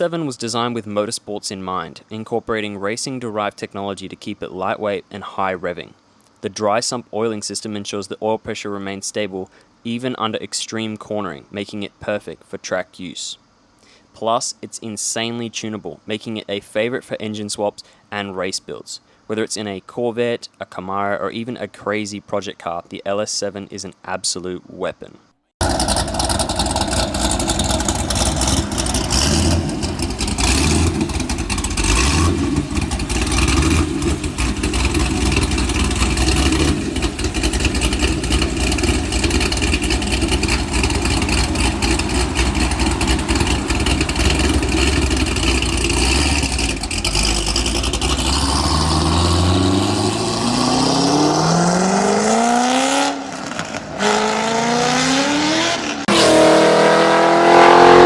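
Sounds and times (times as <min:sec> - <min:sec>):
car engine idling and revving: 0:25.6 - 0:58.0.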